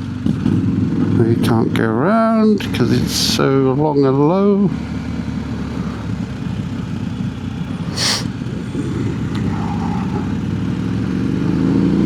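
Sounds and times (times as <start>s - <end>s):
motorcycle engine running: 0.0s - 12.0s
short hiss: 7.9s - 8.3s.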